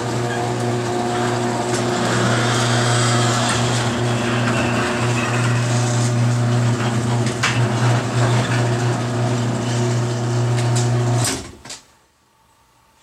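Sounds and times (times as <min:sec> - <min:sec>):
garage door opener motor running: 0:00.0 - 0:11.6.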